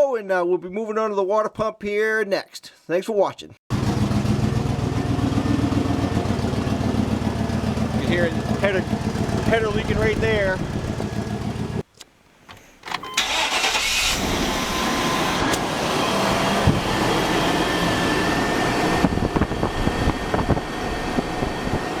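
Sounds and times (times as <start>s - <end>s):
engine starting and running: 3.7s - 11.8s, 12.8s - 22.0s.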